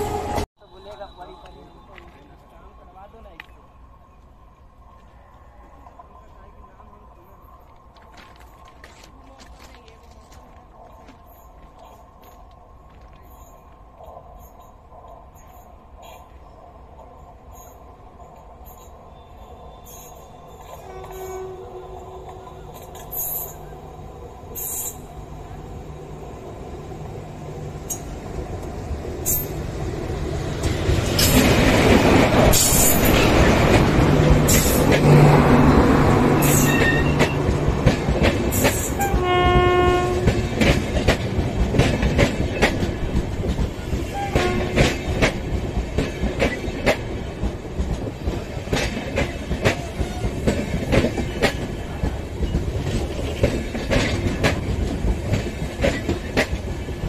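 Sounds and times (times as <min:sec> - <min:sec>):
train rumbling past: 0:00.0 - 0:57.0
train horn blast: 0:20.8 - 0:22.1, 0:39.0 - 0:40.5, 0:44.1 - 0:45.0.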